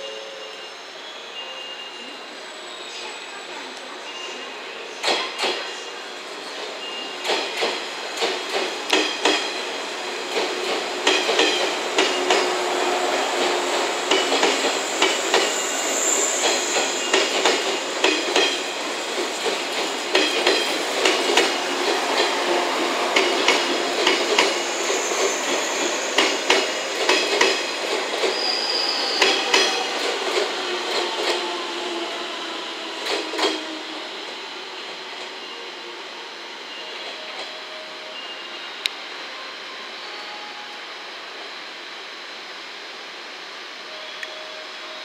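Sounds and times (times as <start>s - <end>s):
wheels clacking over rail joints: 16.4s - 24.7s
high wheel squeals: 21.9s - 26.9s, 27.6s - 34.2s.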